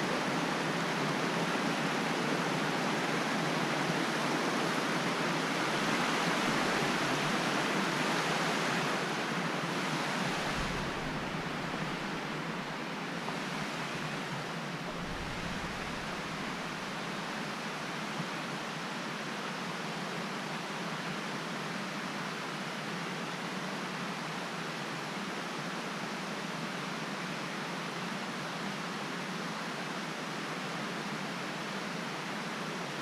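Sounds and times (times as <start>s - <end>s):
waterfall rushing: 0.0s - 18.2s.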